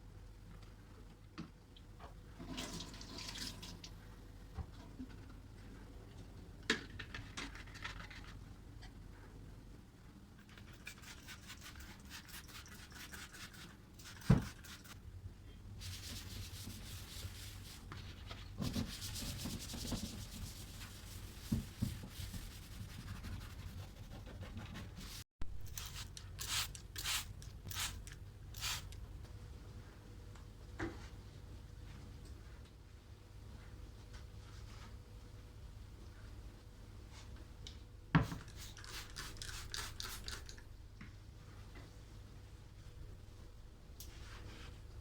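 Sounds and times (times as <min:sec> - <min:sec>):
cloth scrubbing a cabinet: 0:15.8 - 0:25.2.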